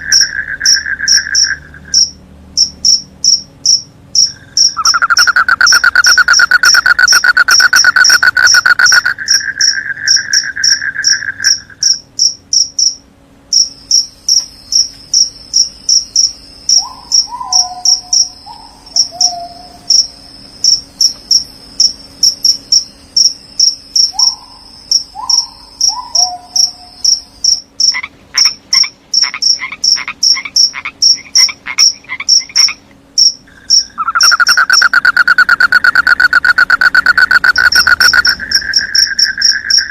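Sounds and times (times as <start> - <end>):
crickets chirping: 0.0 - 39.9
frogs calling: 0.0 - 39.9
insect trill: 0.0 - 39.9
rapid clicking calls: 4.2 - 12.0, 33.7 - 39.9.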